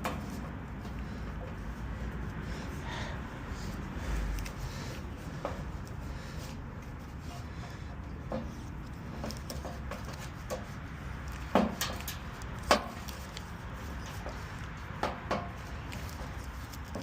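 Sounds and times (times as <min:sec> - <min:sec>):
tools clicking and knocking: 0:07.2 - 0:17.0.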